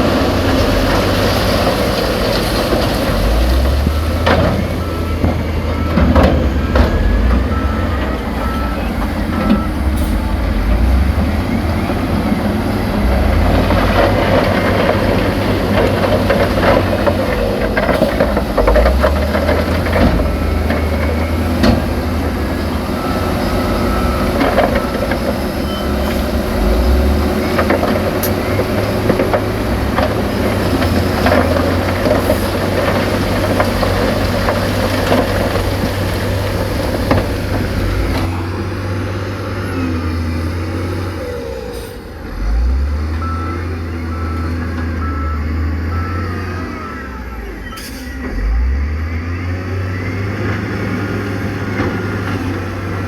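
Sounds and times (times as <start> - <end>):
heavy diesel machinery running: 0.0 - 53.0
reversing alarm beeps: 4.6 - 10.3, 20.1 - 26.3, 43.1 - 51.1.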